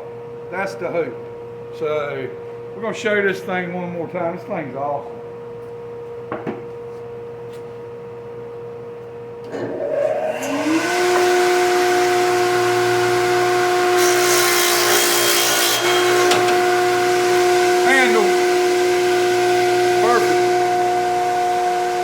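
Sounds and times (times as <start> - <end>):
electric saw whining: 9.5 - 22.0
saw blade cutting wood: 9.8 - 22.0.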